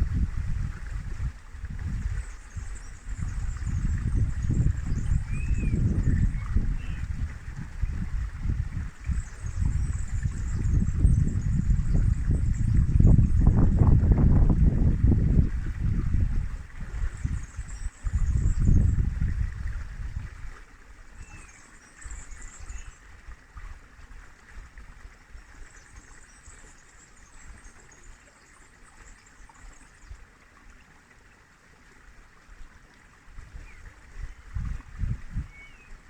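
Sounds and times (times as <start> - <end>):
river water flowing: 0.0 - 36.0.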